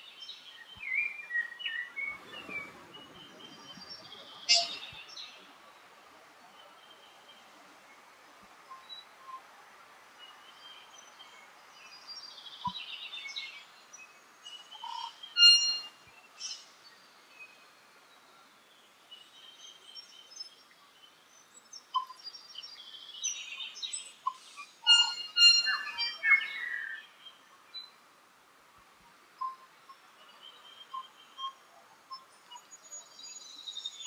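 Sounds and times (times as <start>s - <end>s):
faint background hiss: 0.0s - 34.0s
bird singing whistled notes: 0.2s - 5.4s, 11.9s - 16.6s, 21.9s - 28.0s, 29.4s - 34.0s.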